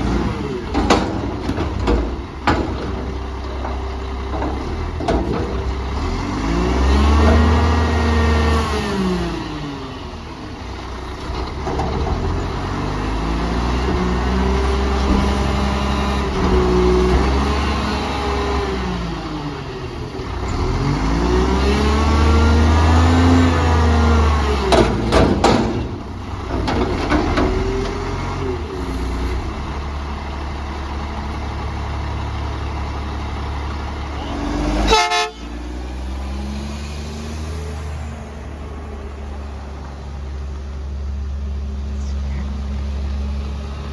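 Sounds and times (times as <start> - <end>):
diesel truck engine revving: 0.0 - 43.9
sharp metallic knocks: 24.7 - 27.8.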